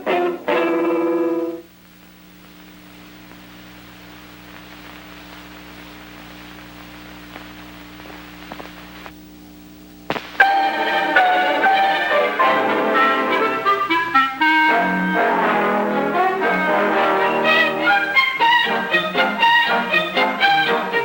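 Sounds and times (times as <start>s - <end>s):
guitar chord: 0.0s - 1.7s, 10.4s - 14.1s
low hum and hiss: 0.0s - 21.0s
faint clicks: 2.6s - 9.2s.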